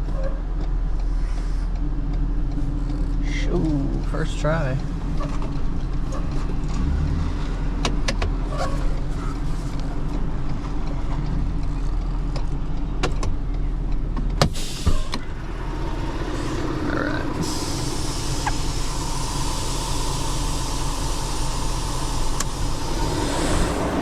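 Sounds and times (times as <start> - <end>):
truck engine running: 0.0 - 24.0
sharp clicks and knocks: 7.8 - 15.3.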